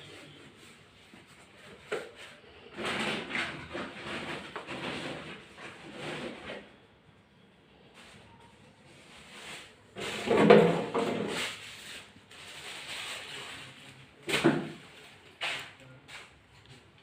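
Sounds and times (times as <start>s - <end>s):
cupboards and drawers knocking: 10.2s - 11.3s, 14.3s - 14.8s.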